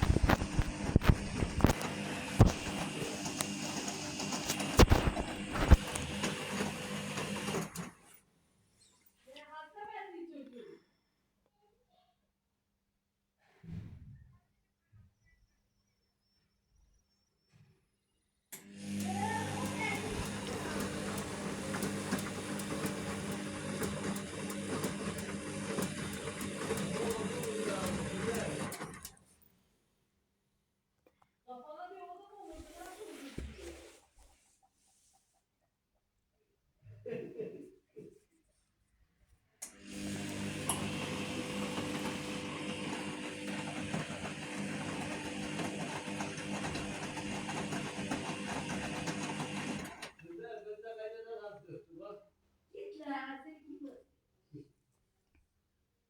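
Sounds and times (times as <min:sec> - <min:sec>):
washing machine drum turning: 0:18.8 - 0:29.1, 0:39.8 - 0:50.0.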